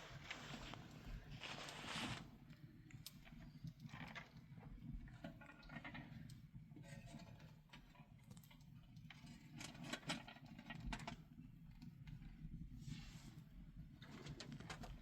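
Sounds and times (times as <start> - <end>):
faint clicks and light taps: 2.5 - 6.5, 7.3 - 12.4.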